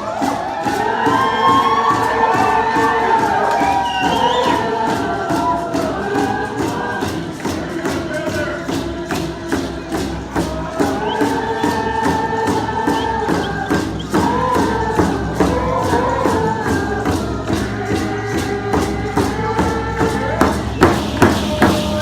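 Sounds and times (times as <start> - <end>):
group of voices singing: 0.0 - 22.0
hand drums beating: 0.0 - 22.0.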